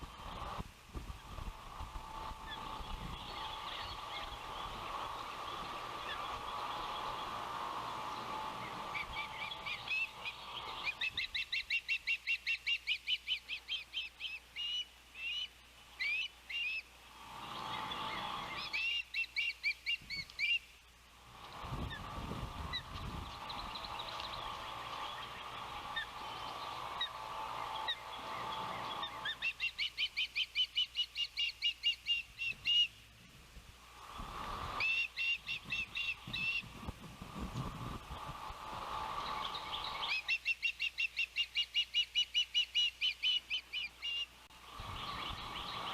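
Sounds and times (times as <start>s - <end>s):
wind rumble on microphone: 0.0s - 11.3s, 21.3s - 29.2s, 33.4s - 40.1s, 44.6s - 45.9s
ospreys chirping: 0.0s - 33.0s, 33.9s - 45.9s.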